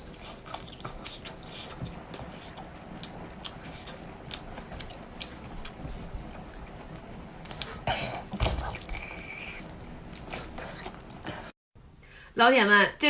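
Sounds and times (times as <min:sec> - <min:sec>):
person chewing food: 0:00.0 - 0:05.8, 0:08.4 - 0:11.5.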